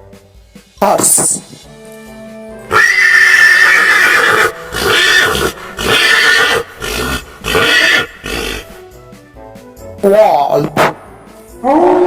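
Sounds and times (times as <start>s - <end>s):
horse whinnying: 2.7s - 8.8s.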